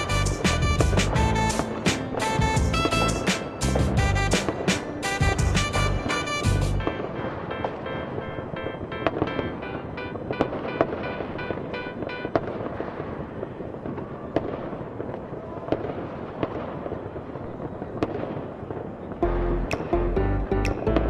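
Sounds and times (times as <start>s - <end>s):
music with deep bass: 0.0s - 6.9s, 19.2s - 21.0s
fireworks crackling: 0.0s - 19.2s
fireworks bangs: 9.0s - 19.2s.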